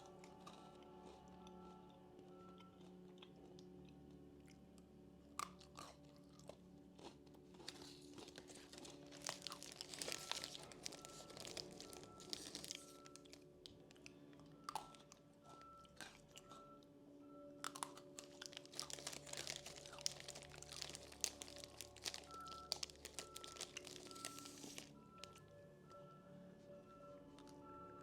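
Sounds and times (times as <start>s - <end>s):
crunching and chewing biscuit sticks: 0.0s - 26.0s, 27.1s - 28.0s
soft background music: 0.0s - 28.0s
wrapper crinkling: 7.6s - 14.0s, 17.8s - 25.4s.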